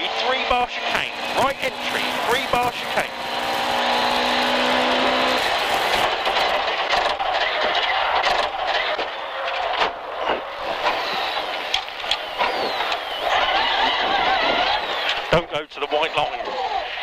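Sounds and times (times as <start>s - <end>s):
car engine: 0.0s - 17.0s
road noise: 0.0s - 17.0s
thin whine falling in pitch: 1.2s - 6.5s
knocks and rattles: 5.8s - 14.8s.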